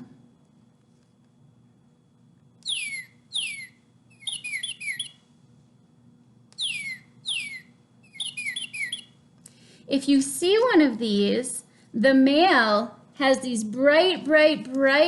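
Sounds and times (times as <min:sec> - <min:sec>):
cardinal whistling song: 0:02.6 - 0:05.2, 0:06.6 - 0:09.2.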